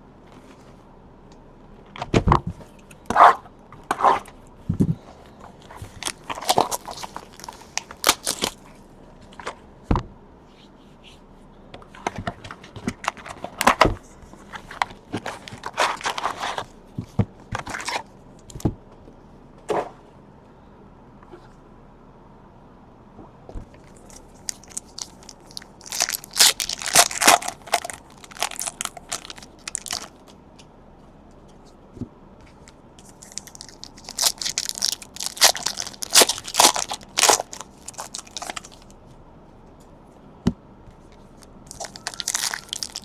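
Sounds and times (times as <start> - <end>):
foil wrappers crinkling: 5.6 - 8.7, 14.5 - 16.7, 23.9 - 30.3, 33.0 - 38.9, 41.7 - 43.0.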